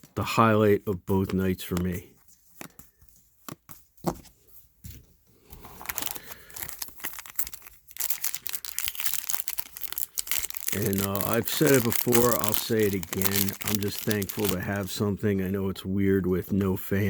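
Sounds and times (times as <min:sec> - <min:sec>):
foil wrapper tearing and crinkling: 0:05.6 - 0:15.0.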